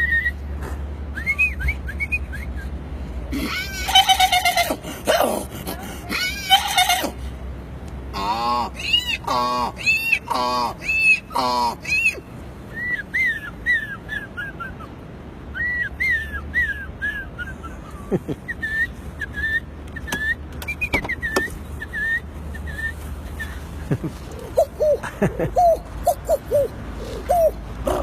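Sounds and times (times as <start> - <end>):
person imitating bird chirps: 3.3 - 7.2, 8.2 - 12.2, 24.3 - 28.0.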